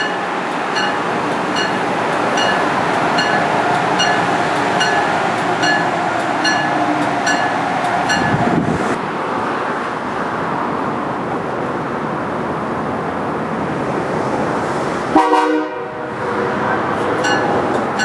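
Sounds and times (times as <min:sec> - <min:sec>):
train rumble and hiss: 0:00.0 - 0:18.0
train horn toot: 0:15.2 - 0:16.6.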